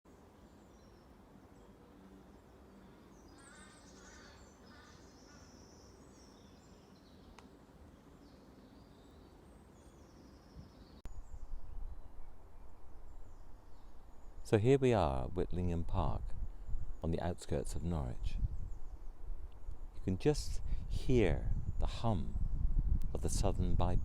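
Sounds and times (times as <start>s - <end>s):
bird calls: 0.1s - 15.1s.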